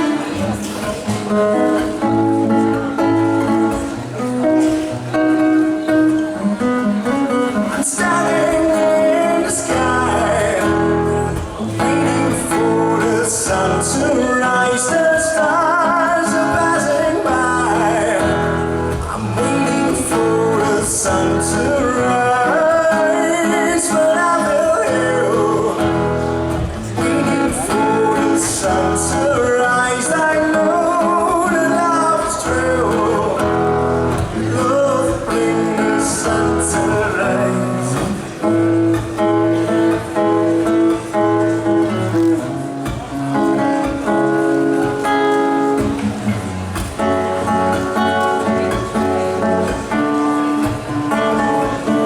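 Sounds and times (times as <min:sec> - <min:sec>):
acoustic guitars strumming: 0:00.0 - 0:52.0.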